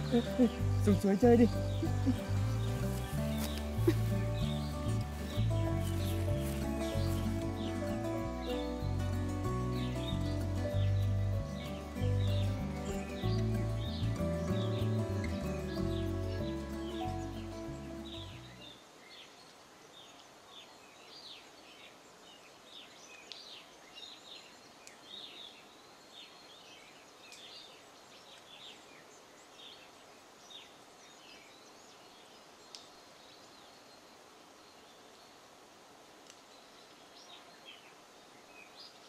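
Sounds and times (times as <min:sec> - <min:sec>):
background music: 0:00.0 - 0:18.6
high chirping bird calls: 0:00.0 - 0:18.7
steady hiss: 0:00.0 - 0:39.0.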